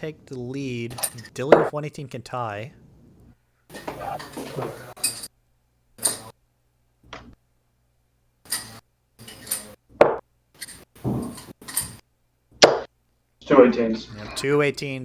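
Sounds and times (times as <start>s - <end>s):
darts striking dartboard: 10.0s - 11.4s, 12.6s - 12.9s.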